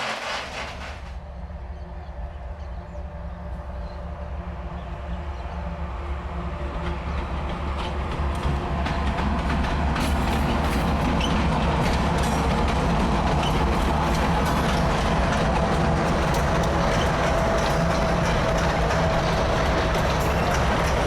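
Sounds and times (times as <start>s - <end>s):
train wheels clattering on rails: 0.0s - 1.2s, 6.6s - 21.0s
locomotive drone: 0.0s - 21.0s.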